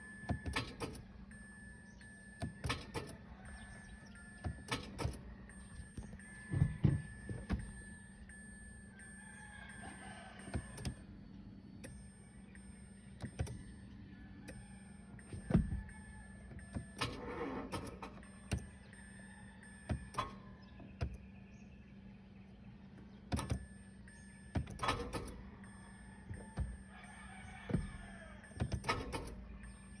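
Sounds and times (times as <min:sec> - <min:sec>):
car starter clicks and knocks: 0:00.1 - 0:30.0
rooster crowing: 0:08.9 - 0:10.8, 0:14.0 - 0:17.3, 0:25.3 - 0:28.7.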